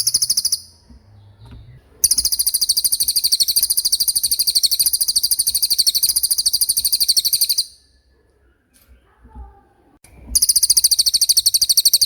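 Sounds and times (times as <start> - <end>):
songbird fast trill: 0.0 - 0.9, 2.0 - 7.9, 10.3 - 12.0.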